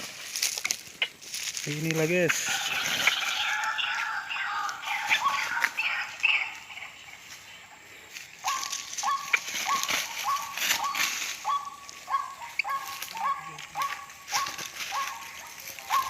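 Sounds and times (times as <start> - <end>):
waterhen calls: 2.3 - 7.0, 8.4 - 16.0.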